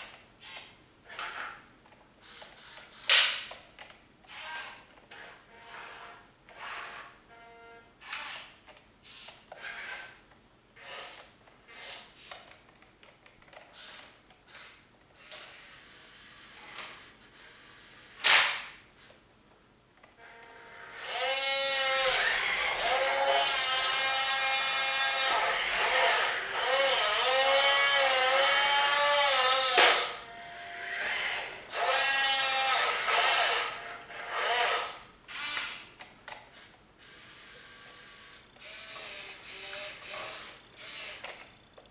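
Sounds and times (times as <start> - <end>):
small electric motors whining: 13.8 - 18.2, 20.2 - 41.6.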